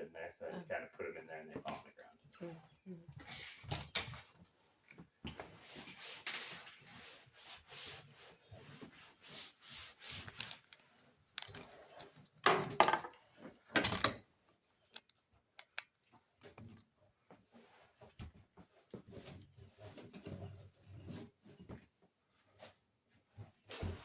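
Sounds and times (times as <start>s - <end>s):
soft rubbing and scraping: 1.1s - 12.2s, 17.2s - 23.6s.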